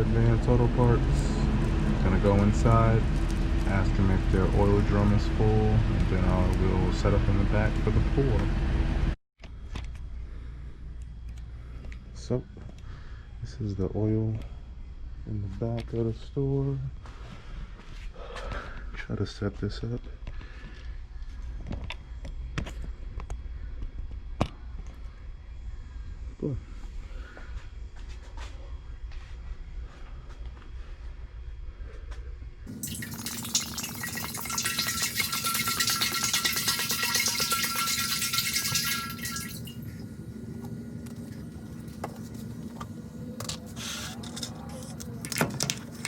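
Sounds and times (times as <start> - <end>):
steady low rumble: 0.0 - 9.2
steady hum: 0.0 - 46.0
oil pouring into a drum: 32.7 - 40.1.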